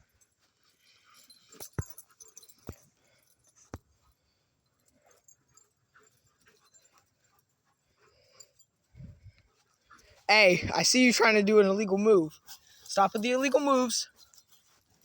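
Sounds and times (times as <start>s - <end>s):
dogs play-fighting: 0.0s - 10.3s, 12.3s - 12.9s, 14.1s - 15.0s.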